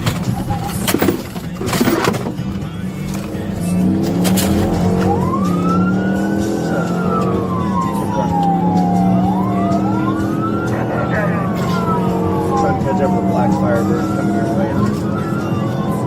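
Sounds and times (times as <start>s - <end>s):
car engine droning: 0.0s - 16.0s
police siren wailing: 3.2s - 16.0s.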